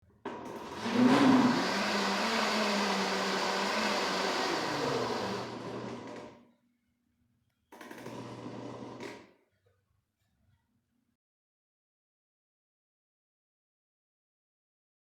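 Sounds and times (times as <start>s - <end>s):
blender motor running: 0.5s - 6.4s, 7.9s - 9.2s.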